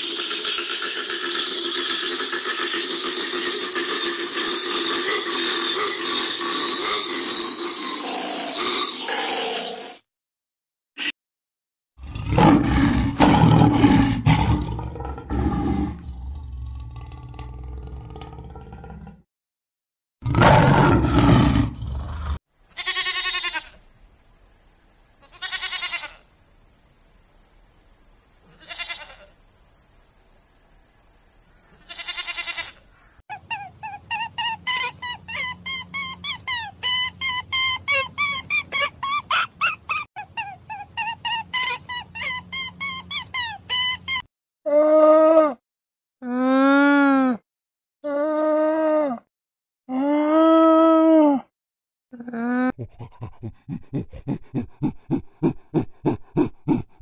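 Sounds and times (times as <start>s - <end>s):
lion roaring: 12.0s - 19.2s, 20.2s - 22.4s
animal bleating: 22.7s - 23.8s, 25.2s - 26.3s, 28.4s - 29.3s, 31.8s - 32.8s.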